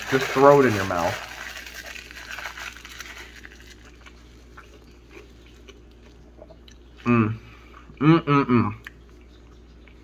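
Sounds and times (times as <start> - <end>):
low steady hum: 0.0 - 10.0
faint chewing with wet mouth sounds: 1.1 - 7.1.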